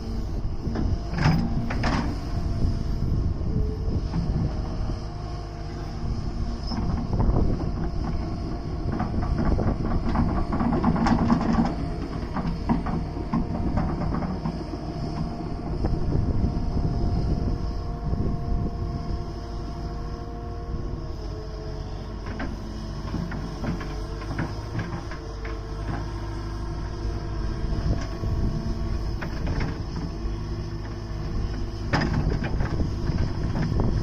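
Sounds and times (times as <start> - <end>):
excavator engine drone: 0.0 - 34.0
hydraulic whine: 0.0 - 34.0
knocks and clanks: 8.8 - 14.6.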